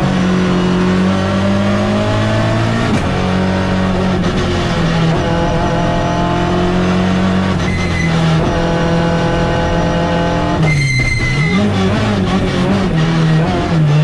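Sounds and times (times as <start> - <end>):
race car engine at high revs: 0.0 - 14.0
high squeal: 7.6 - 8.4, 9.6 - 11.9.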